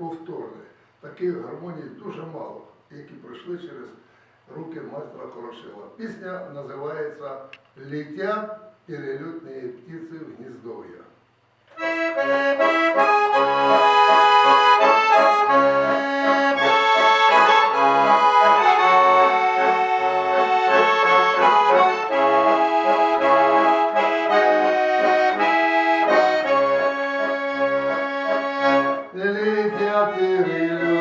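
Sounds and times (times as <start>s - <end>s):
button accordion melody: 11.7s - 31.0s
repeated accordion bass notes: 11.7s - 31.0s.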